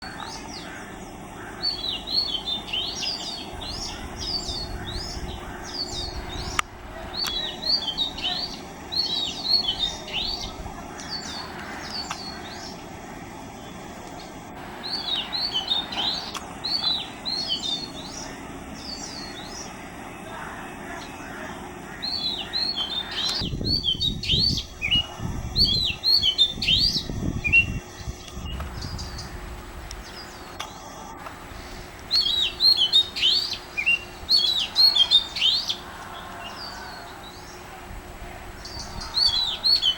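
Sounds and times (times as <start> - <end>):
low background noise: 0.0 - 39.9
bird singing whistled notes: 1.6 - 12.8, 14.8 - 19.8, 22.0 - 29.3, 32.1 - 35.8, 38.6 - 39.9.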